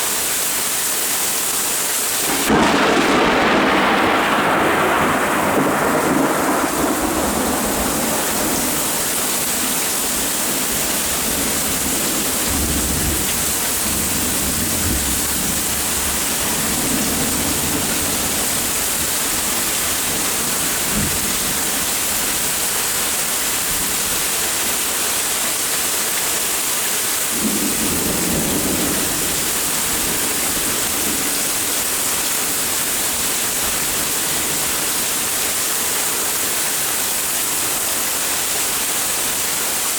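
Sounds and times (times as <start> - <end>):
rain hissing: 0.0 - 39.9
thunder rumbling: 2.2 - 24.2, 27.4 - 35.6.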